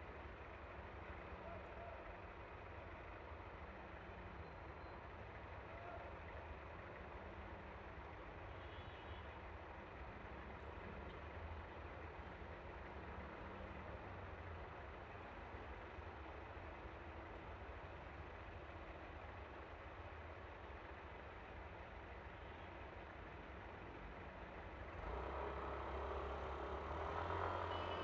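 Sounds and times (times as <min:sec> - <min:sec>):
wind and road noise: 0:09.3 - 0:28.0
scooter engine drone: 0:25.0 - 0:28.0.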